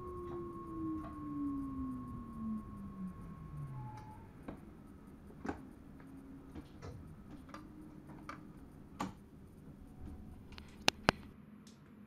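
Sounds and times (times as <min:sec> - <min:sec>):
sharp clicks and ticks: 0:00.0 - 0:11.3
train low running rumble: 0:00.0 - 0:11.4.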